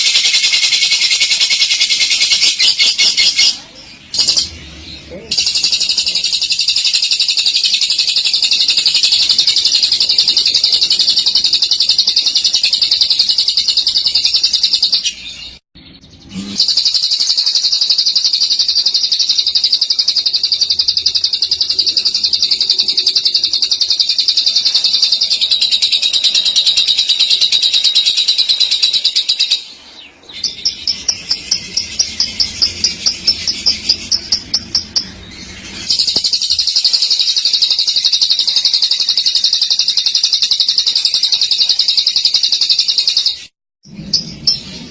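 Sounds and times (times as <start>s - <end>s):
bird chattering trill: 0.0s - 15.2s, 16.0s - 43.5s.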